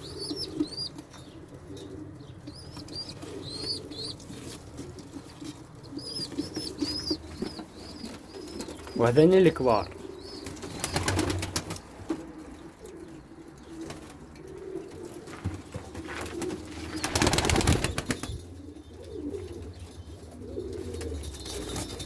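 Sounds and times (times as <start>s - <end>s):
pigeons cooing: 0.0s - 22.0s
wing flutter: 15.4s - 18.5s.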